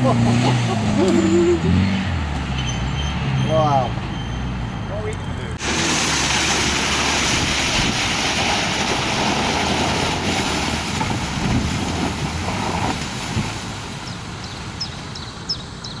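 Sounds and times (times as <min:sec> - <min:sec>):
vehicle engine pulling away: 0:05.6 - 0:16.0
bird chirping: 0:14.0 - 0:16.0.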